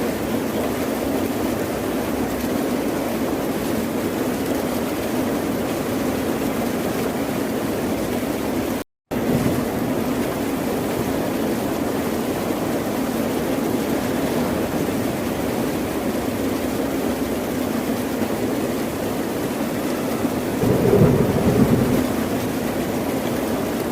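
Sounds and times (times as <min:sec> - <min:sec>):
ocean surf rushing: 0:20.2 - 0:23.9.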